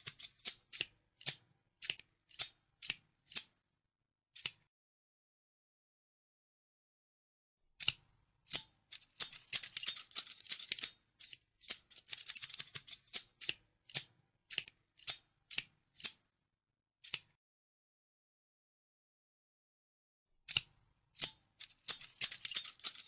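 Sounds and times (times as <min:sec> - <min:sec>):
scissors snipping: 0:00.0 - 0:03.5, 0:04.4 - 0:04.7, 0:07.8 - 0:16.2, 0:17.0 - 0:17.4, 0:20.5 - 0:23.0.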